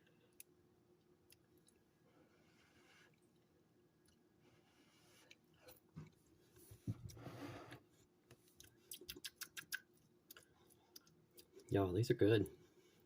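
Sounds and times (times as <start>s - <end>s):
person chewing with mouth clicks: 8.5s - 11.7s.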